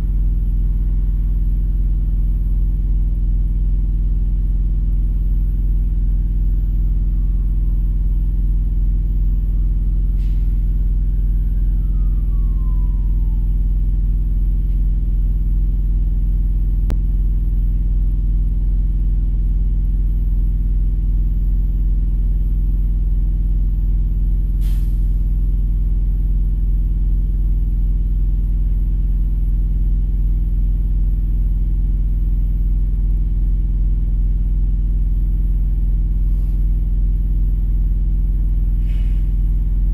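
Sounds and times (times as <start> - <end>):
vehicle engine idling: 0.0 - 39.9
short hiss: 24.6 - 25.1, 38.8 - 39.3.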